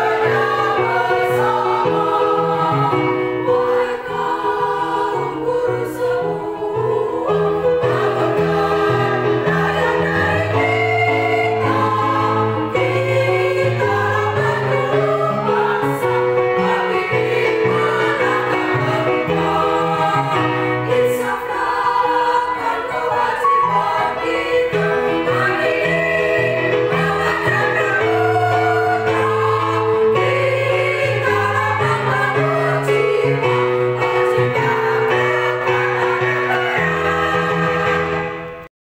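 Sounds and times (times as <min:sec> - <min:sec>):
choir singing held chords: 0:00.0 - 0:38.7.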